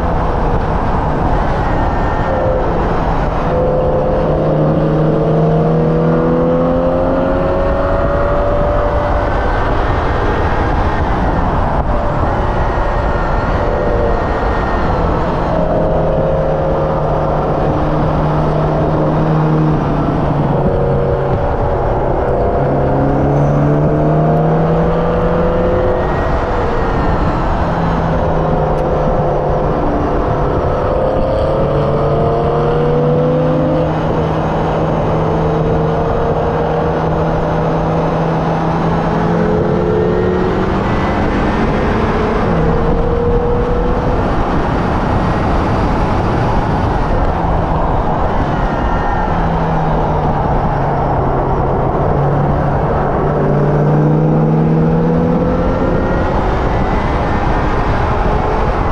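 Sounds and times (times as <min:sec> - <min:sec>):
car engine revving: 0:00.0 - 0:58.9
wind noise: 0:00.0 - 0:58.9.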